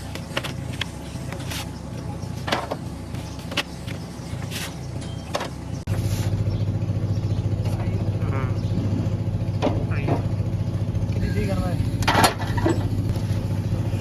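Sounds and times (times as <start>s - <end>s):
engine running with fast pulse: 0.0s - 14.0s
sharp metallic knocks: 9.6s - 10.4s.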